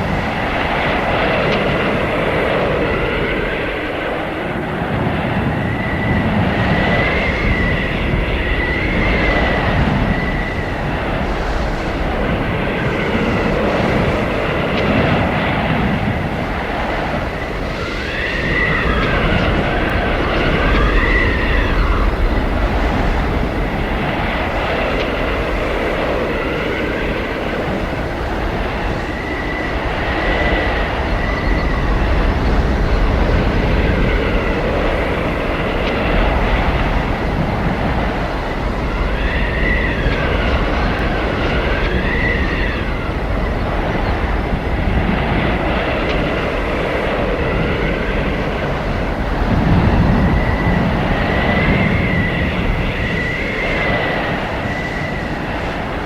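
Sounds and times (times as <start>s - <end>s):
gusting blizzard wind: 0.0s - 56.0s
high whistling wind howl: 0.0s - 56.0s.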